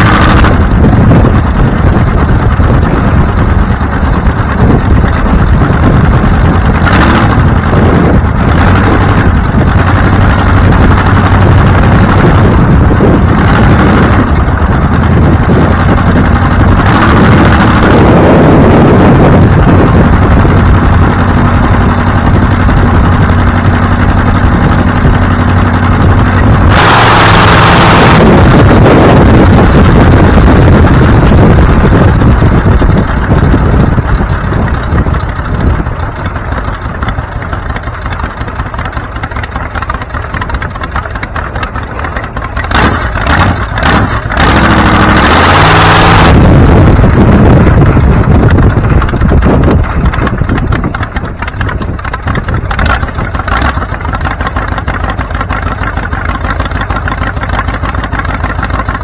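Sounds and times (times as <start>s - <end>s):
car engine running: 0.0s - 59.0s.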